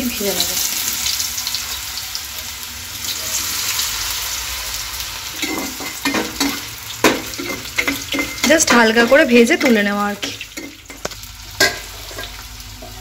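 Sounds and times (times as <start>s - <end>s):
food sizzling in hot oil: 0.0s - 13.0s
spatula scraping a pan: 5.3s - 13.0s.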